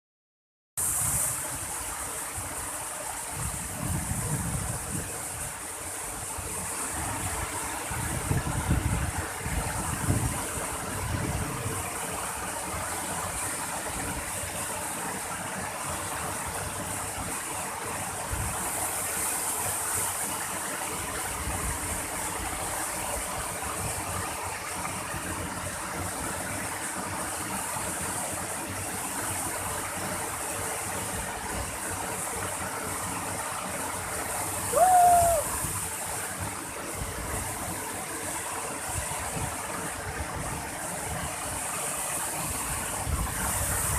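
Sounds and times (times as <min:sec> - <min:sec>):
waterfall rushing: 0:21.9 - 0:43.9.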